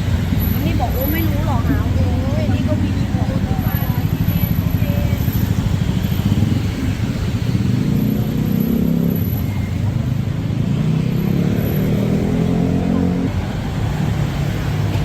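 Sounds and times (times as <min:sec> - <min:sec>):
vehicle engine running: 0:00.0 - 0:10.0
city street hum: 0:00.0 - 0:15.0.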